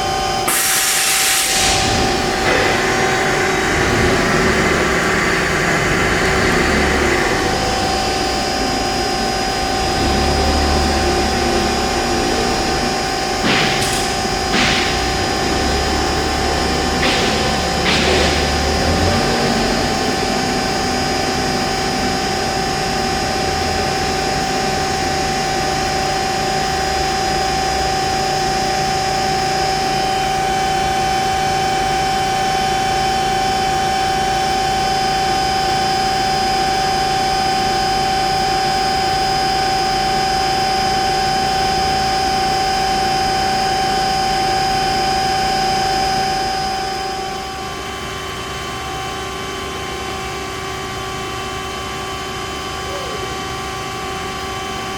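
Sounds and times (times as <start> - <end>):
band saw running: 1.5 - 27.8.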